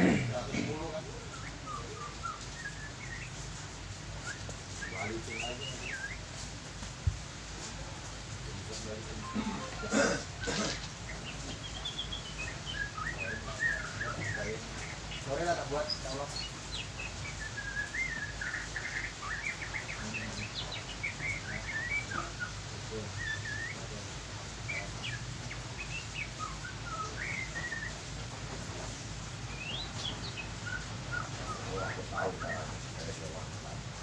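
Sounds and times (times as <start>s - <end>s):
bird chirping and twittering: 0.0s - 34.0s.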